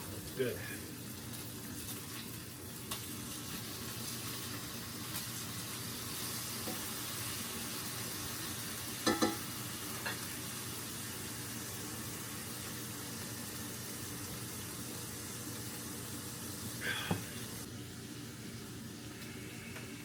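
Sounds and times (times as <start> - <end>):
patties sizzling in a pan: 0.0 - 20.0.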